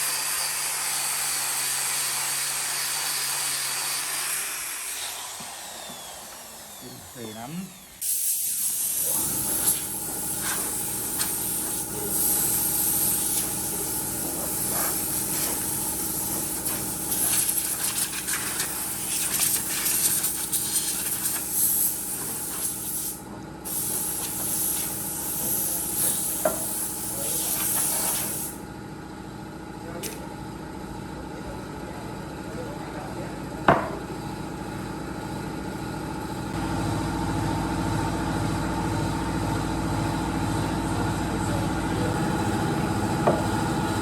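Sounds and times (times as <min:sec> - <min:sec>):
motor humming: 0:04.5 - 0:08.1
compressed air hissing: 0:06.8 - 0:28.6.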